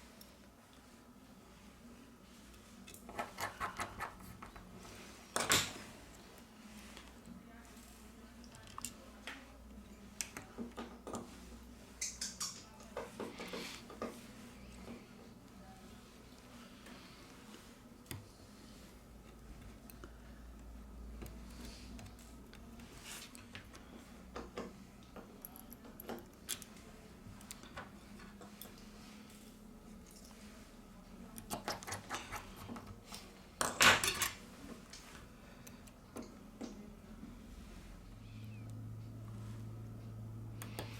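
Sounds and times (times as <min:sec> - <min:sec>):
faint steady hum: 0:00.0 - 0:40.9
small parts clicking and tapping: 0:08.4 - 0:09.5, 0:23.2 - 0:26.8.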